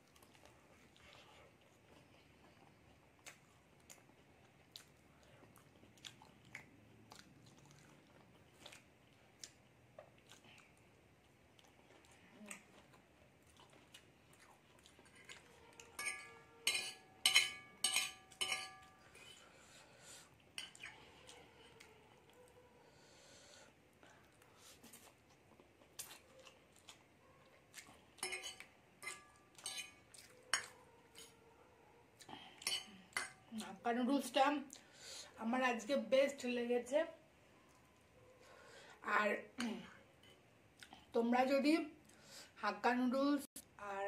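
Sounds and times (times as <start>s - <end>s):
chewing with mouth clicks: 0.0s - 16.4s, 24.0s - 31.4s, 39.6s - 41.2s
fork clinking on glass plate: 16.0s - 18.9s, 28.2s - 30.0s.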